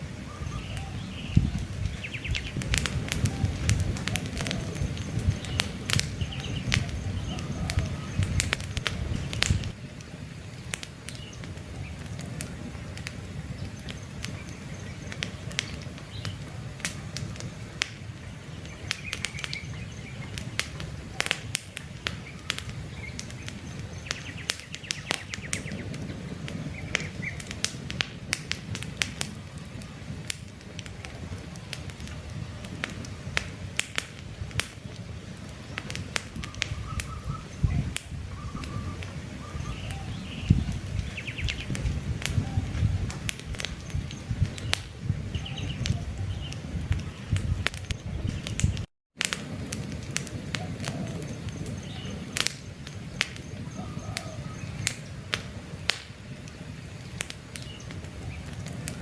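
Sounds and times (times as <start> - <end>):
campfire crackling: 0.0 - 59.0
faint birds chirping: 0.2 - 27.5, 35.2 - 48.9, 50.6 - 59.0.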